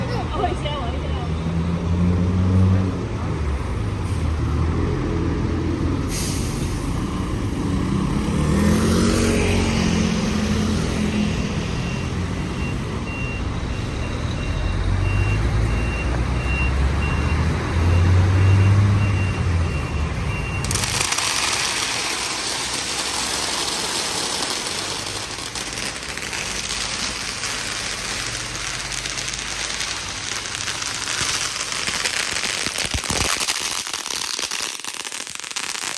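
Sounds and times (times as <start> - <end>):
diesel bus engine revving: 1.4 - 13.0, 14.4 - 32.3
air brake hiss: 6.1 - 7.2
firecrackers crackling: 6.1 - 12.8, 19.8 - 35.9
reversing beeps: 11.6 - 20.8.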